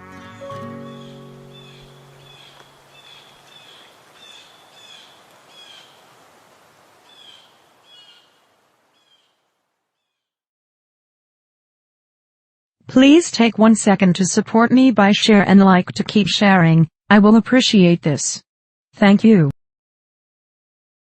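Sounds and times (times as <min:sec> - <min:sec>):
soft music: 0:00.0 - 0:03.6
bird chirping: 0:00.3 - 0:06.1, 0:07.0 - 0:09.4
outdoor ambient hiss: 0:00.8 - 0:10.1.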